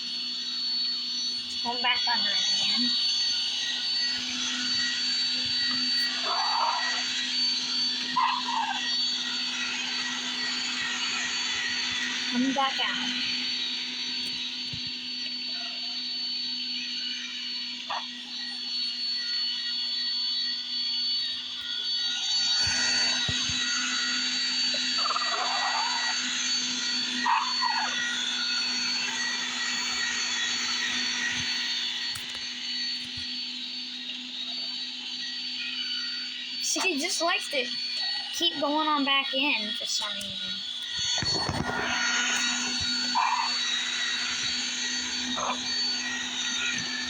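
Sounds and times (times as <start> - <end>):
robot vacuum whirring: 0.0 - 47.0.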